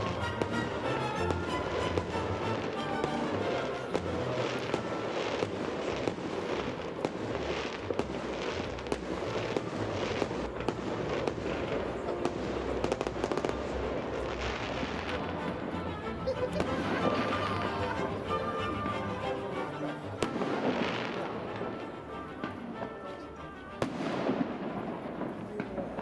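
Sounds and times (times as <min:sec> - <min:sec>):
fireworks bangs and crackles: 0:00.0 - 0:19.0, 0:19.8 - 0:26.0.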